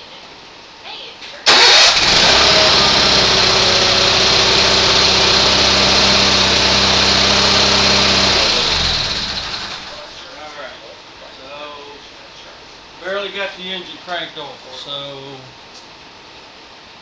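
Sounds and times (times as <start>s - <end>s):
garden tractor engine running: 1.5s - 10.2s.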